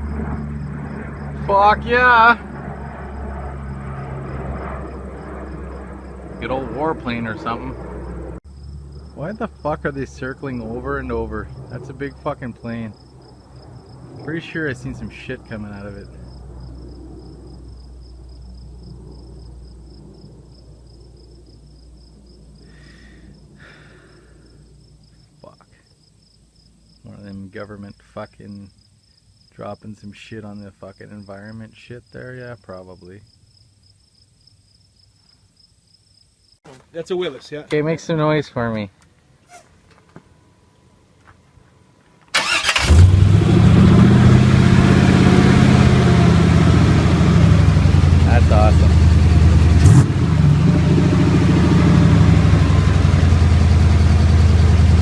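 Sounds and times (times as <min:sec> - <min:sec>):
aircraft drone overhead: 0:00.0 - 0:25.8, 0:40.2 - 0:55.0
crickets chirping: 0:00.0 - 0:38.2, 0:42.4 - 0:42.9
car engine cranking and running: 0:42.3 - 0:55.0.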